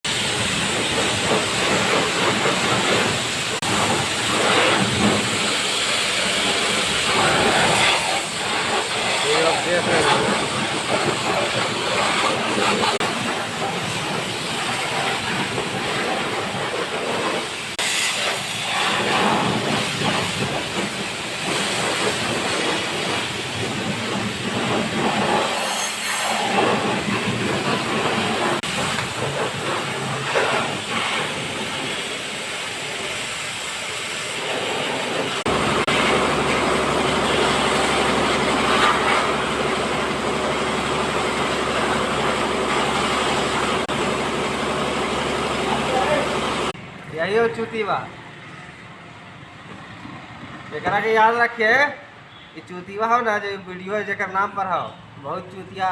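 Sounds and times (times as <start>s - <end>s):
washing machine water and drum: 0.0s - 50.9s
low motor hum: 35.5s - 46.8s.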